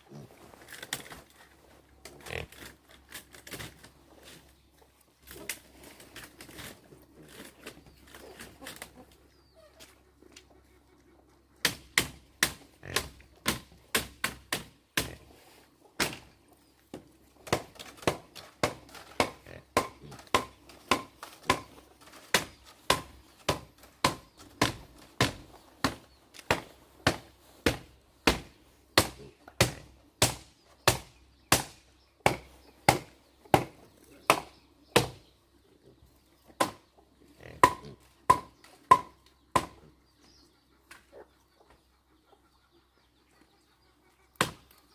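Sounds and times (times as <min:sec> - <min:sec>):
hand tool striking wood: 0:17.5 - 0:35.2, 0:37.6 - 0:39.8.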